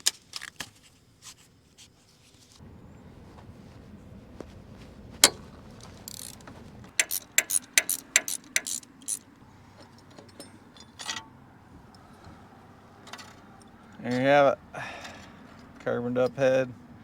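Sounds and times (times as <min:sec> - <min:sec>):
metal tool clicks: 0:05.2 - 0:11.3.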